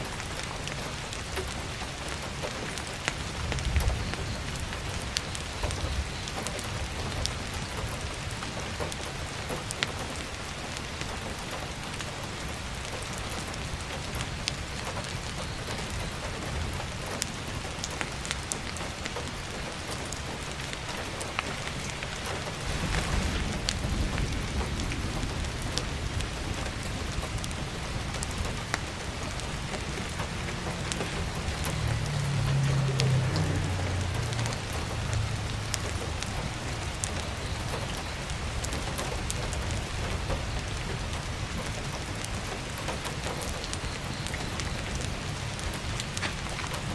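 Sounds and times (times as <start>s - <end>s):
heavy rain on a skylight: 0.0s - 46.9s
wood stove fire crackling: 0.1s - 46.9s
low rumble: 22.1s - 37.0s.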